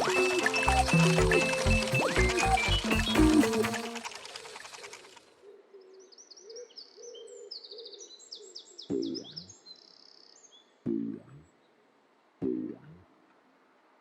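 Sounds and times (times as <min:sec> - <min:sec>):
low sound dropping in pitch: 0:00.0 - 0:04.0
music cue: 0:00.0 - 0:04.2.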